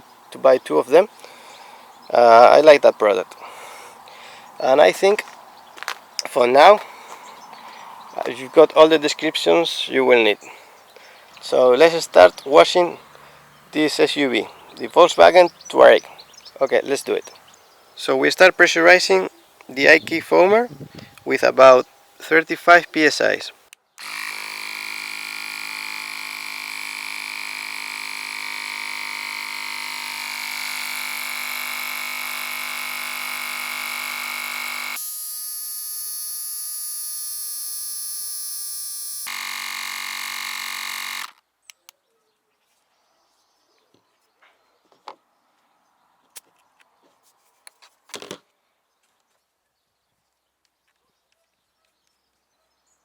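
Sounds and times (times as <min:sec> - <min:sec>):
air compressor buzzing hum: 0:24.0 - 0:41.4.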